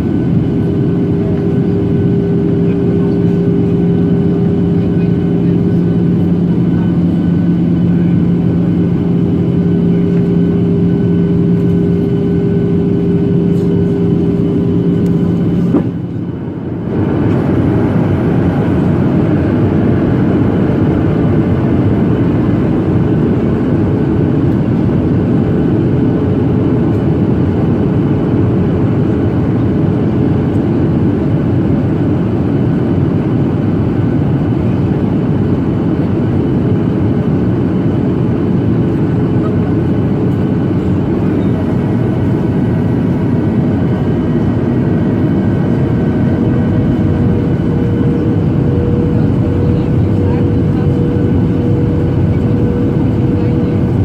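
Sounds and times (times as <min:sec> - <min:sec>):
airplane cabin engine rush: 0:00.0 - 0:54.0
higher hum: 0:47.0 - 0:54.0.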